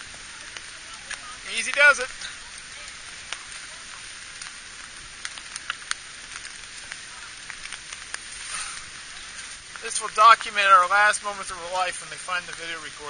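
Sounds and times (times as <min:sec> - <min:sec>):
rain hissing: 0:00.0 - 0:13.0
raindrops tapping: 0:00.0 - 0:13.0.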